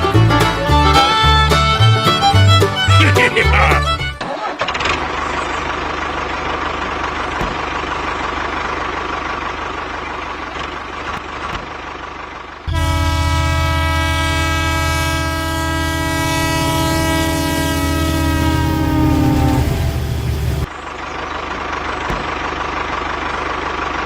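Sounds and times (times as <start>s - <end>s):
train running rumble: 5.1s - 24.0s
train horn: 12.7s - 20.1s.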